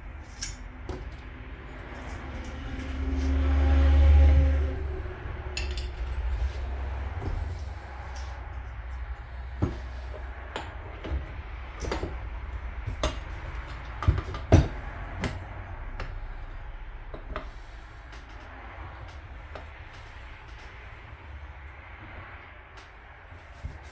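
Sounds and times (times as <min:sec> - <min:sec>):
steady low hum: 0:00.0 - 0:23.9
metal parts clicking and knocking: 0:00.2 - 0:03.4.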